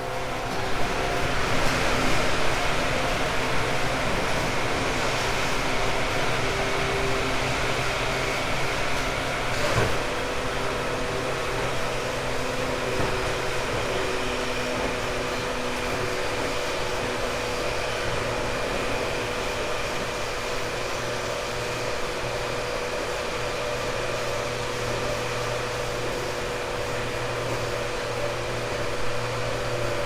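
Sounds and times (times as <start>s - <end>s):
traction motors humming: 0.0s - 30.0s
wheels rumbling on track: 0.0s - 30.0s.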